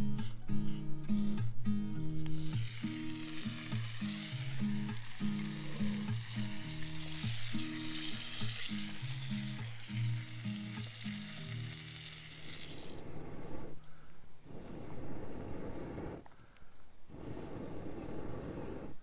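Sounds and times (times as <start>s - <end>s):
soft background music: 0.0s - 12.6s
food sizzling in a skillet: 2.1s - 13.6s.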